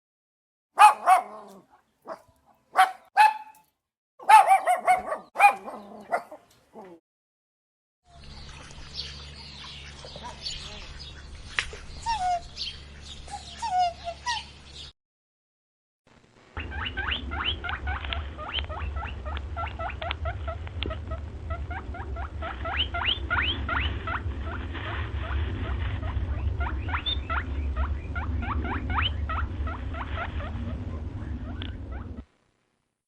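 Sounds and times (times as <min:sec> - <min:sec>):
steady low hum: 0:08.1 - 0:14.9, 0:16.1 - 0:32.9.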